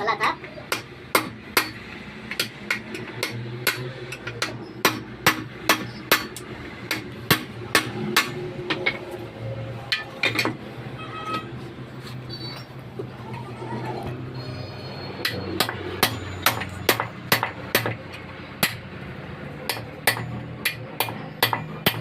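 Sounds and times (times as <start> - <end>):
hammer striking metal: 0.7 - 9.0, 9.9 - 10.6, 15.2 - 19.0, 19.6 - 22.0.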